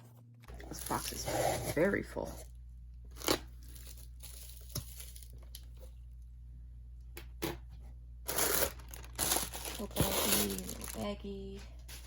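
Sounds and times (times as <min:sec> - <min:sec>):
packaging rustling and clicking: 0:08.3 - 0:11.1.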